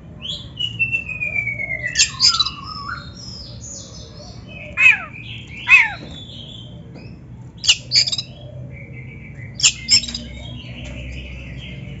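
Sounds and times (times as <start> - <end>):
thin drawn-out bird whistle: 0.6 - 3.1
bird chattering notes: 1.9 - 3.2, 4.4 - 6.4, 7.6 - 8.4, 9.6 - 11.2.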